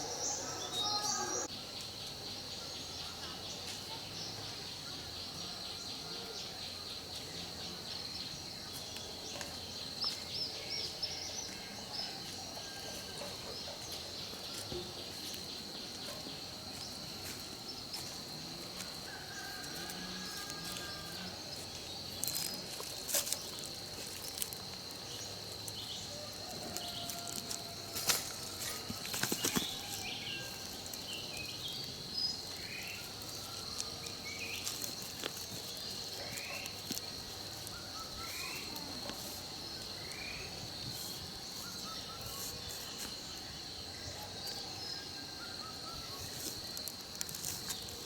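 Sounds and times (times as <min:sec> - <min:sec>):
bird chirps: 0:00.0 - 0:01.9
insects droning: 0:00.0 - 0:48.0.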